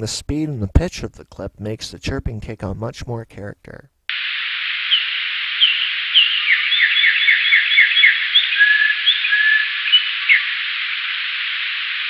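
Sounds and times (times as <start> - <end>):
steady filtered hiss: 0.0 - 12.0
slowed bird chirps: 4.9 - 11.7.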